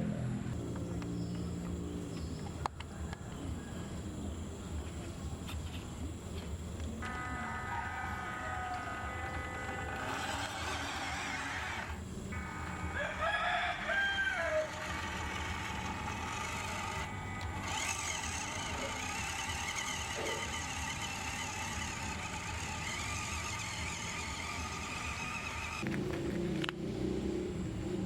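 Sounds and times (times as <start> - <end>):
steady background hum: 0.0 - 26.6
faint wavering high whine: 6.9 - 25.5
rooster crowing: 7.2 - 11.9, 12.8 - 20.6.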